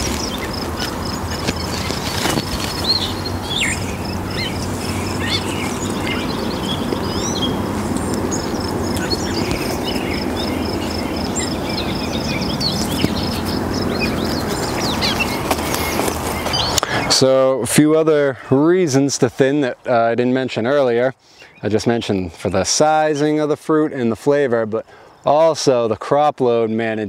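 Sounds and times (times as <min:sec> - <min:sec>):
small birds chirping: 0:00.0 - 0:17.3, 0:20.6 - 0:25.6.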